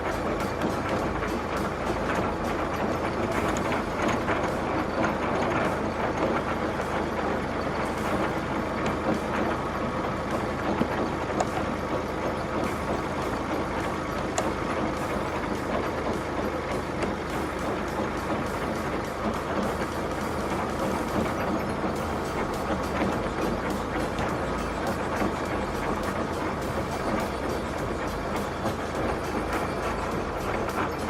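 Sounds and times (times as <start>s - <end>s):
truck engine running: 0.0s - 31.0s.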